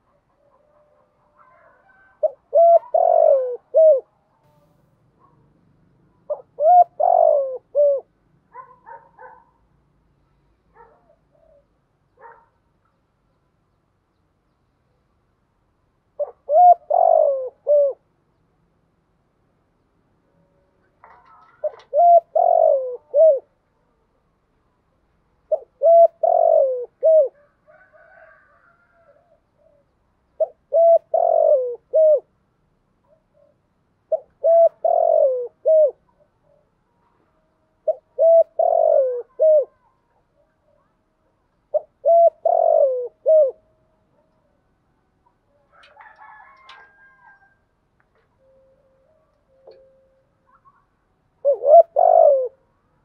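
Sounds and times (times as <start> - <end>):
dove cooing: 0.0 - 5.3, 6.2 - 9.6, 16.2 - 18.1, 21.0 - 23.6, 25.5 - 32.3, 33.1 - 37.2, 37.8 - 44.6, 45.4 - 47.6, 48.4 - 52.7.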